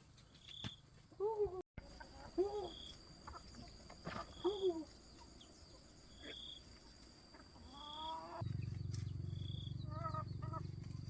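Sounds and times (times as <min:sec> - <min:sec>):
farm animals calling: 0:01.8 - 0:11.0
steady low hum: 0:08.4 - 0:11.0.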